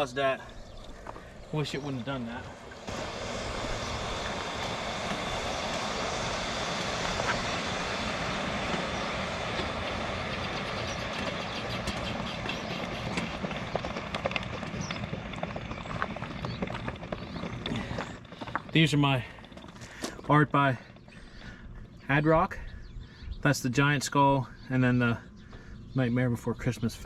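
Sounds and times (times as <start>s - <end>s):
steady rushing noise: 0.0s - 18.6s.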